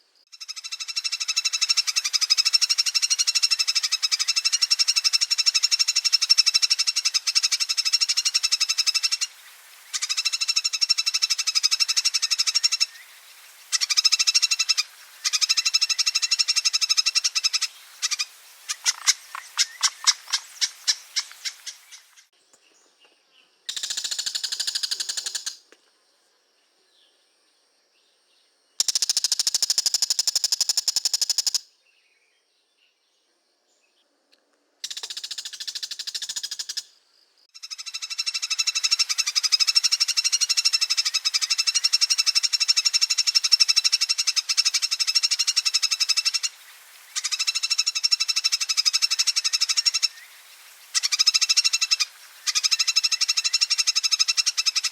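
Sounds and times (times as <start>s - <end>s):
bird rattling chatter: 18.0s - 22.3s, 23.7s - 25.6s.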